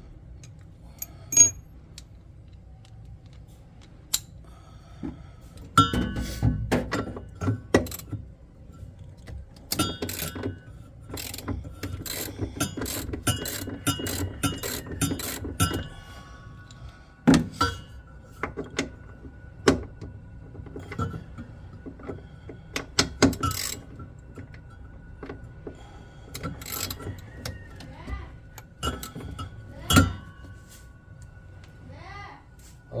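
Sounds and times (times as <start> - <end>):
hand tools clicking and clanking: 0.4 - 2.1, 5.6 - 8.2, 9.0 - 19.1, 19.7 - 30.7.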